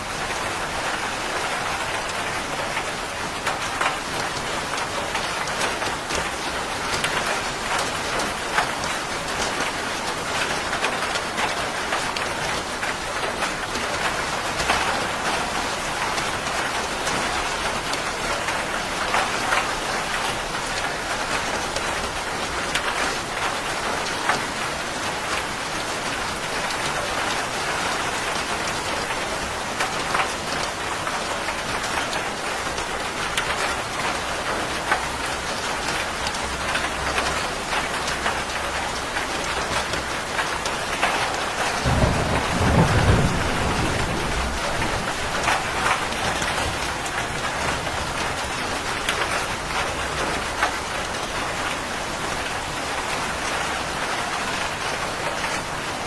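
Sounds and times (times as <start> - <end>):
heavy rain pattering: 0.0 - 56.0
thunder rumble: 41.8 - 46.9.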